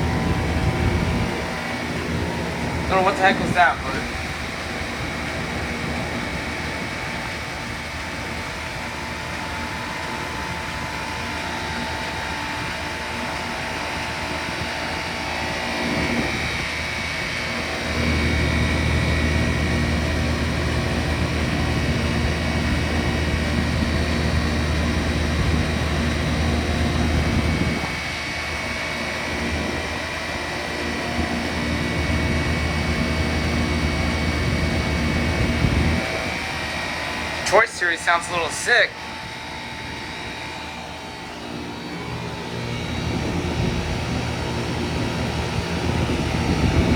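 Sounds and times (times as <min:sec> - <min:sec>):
deeper louder hum: 0:00.0 - 0:06.8, 0:30.9 - 0:46.9
fan and compressor hum: 0:00.0 - 0:46.9
thin steady whine: 0:00.0 - 0:46.9.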